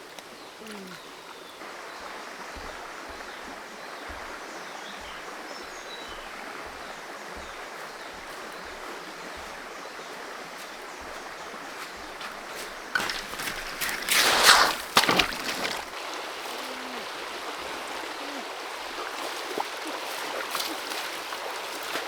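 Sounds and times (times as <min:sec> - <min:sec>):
creek water flowing: 0:00.0 - 0:22.0.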